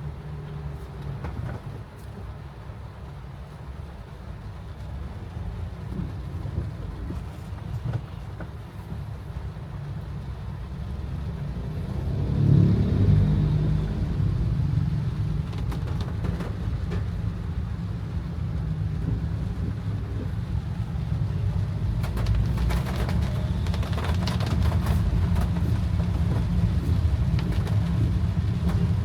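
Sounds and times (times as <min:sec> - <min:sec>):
car driving rumble: 0:10.4 - 0:29.0.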